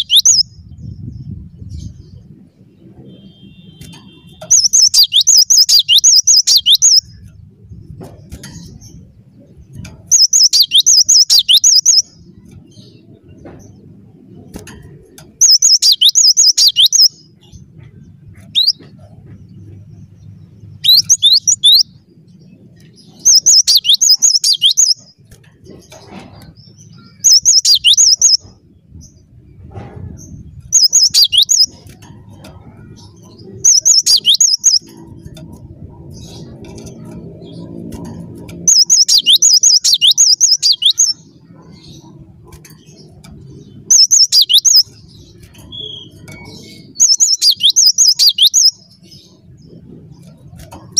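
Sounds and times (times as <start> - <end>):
bird singing high whistled notes: 0.0 - 1.0, 2.9 - 7.3, 10.1 - 12.2, 15.4 - 17.2, 20.8 - 21.9, 23.2 - 25.1, 27.0 - 28.6, 30.7 - 32.0, 33.7 - 34.9, 38.7 - 41.2, 43.9 - 49.0.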